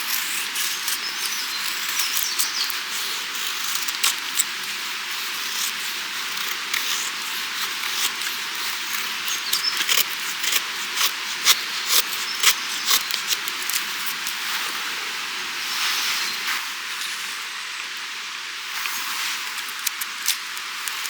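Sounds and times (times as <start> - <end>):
sharp clicks and snaps: 19.6 - 21.0.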